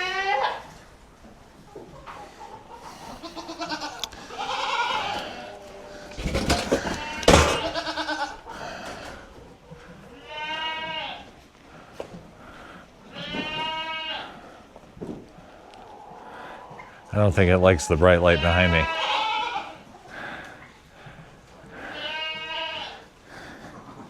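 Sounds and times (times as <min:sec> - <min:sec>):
goats bleating: 0:00.0 - 0:00.7, 0:03.0 - 0:09.1, 0:10.0 - 0:11.4, 0:13.0 - 0:14.6, 0:17.4 - 0:23.6.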